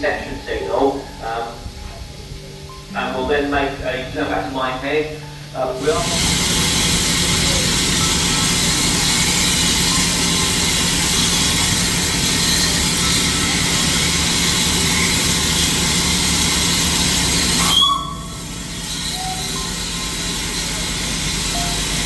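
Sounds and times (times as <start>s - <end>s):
steam locomotive hissing steam: 0.0s - 22.0s.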